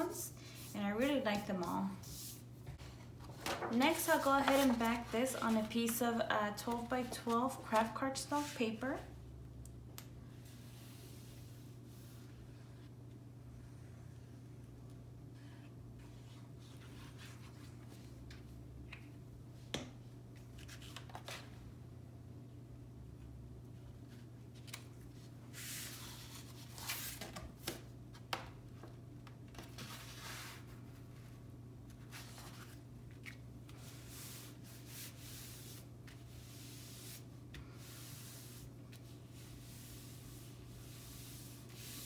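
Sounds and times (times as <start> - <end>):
paper rustling and scraping: 0.6 - 8.6, 29.6 - 37.3
paper rustling: 3.2 - 8.6.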